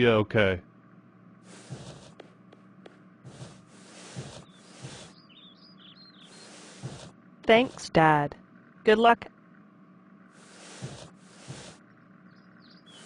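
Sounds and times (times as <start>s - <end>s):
bird chirping: 4.0s - 7.1s, 10.8s - 13.0s.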